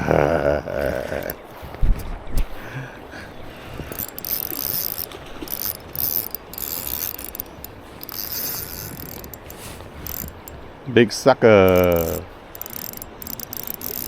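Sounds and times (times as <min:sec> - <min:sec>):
fishing reel rasping and clicking: 0:01.1 - 0:01.4, 0:03.8 - 0:10.6, 0:11.6 - 0:14.0.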